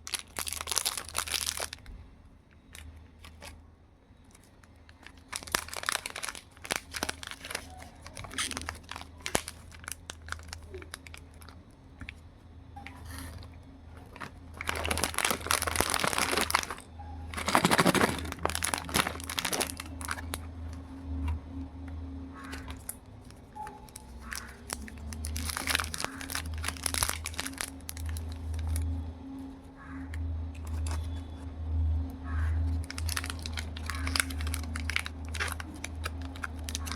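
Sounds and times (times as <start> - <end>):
wrappers crinkling: 0.0 - 1.9, 4.3 - 11.6, 14.0 - 21.2, 22.5 - 29.1, 32.6 - 36.9.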